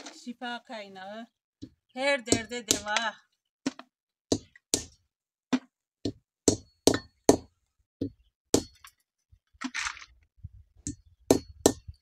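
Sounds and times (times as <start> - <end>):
berries being cracked with knocks: 3.6 - 6.6.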